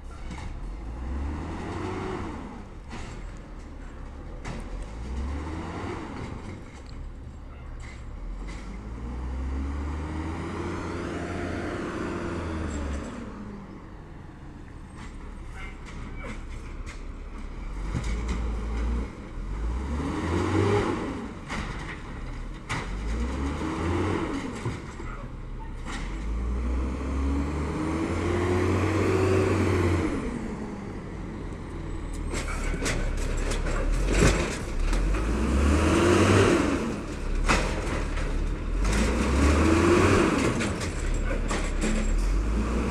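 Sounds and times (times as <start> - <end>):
diesel truck engine revving: 0.6 - 3.4, 4.4 - 6.9, 8.2 - 13.7, 17.2 - 42.9
knocks and clatter: 21.4 - 23.5, 24.4 - 25.2, 32.1 - 36.0, 36.8 - 42.6.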